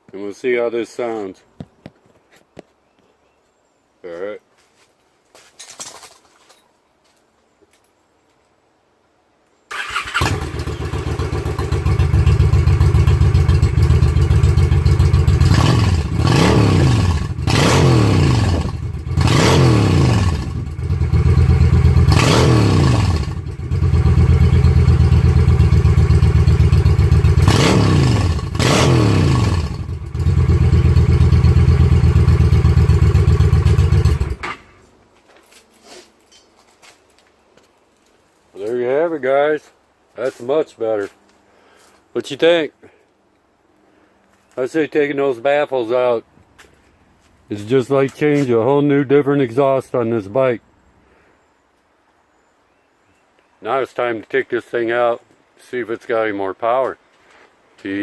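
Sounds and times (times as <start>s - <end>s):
motorcycle engine idling and revving: 9.8s - 34.7s.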